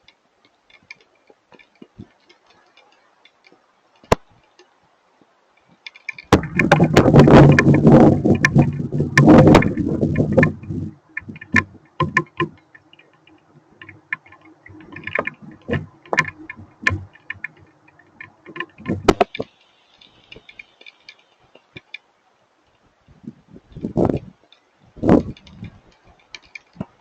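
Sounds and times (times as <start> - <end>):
hailstones and raindrops ticking: 5.6 - 22.1, 23.7 - 27.0.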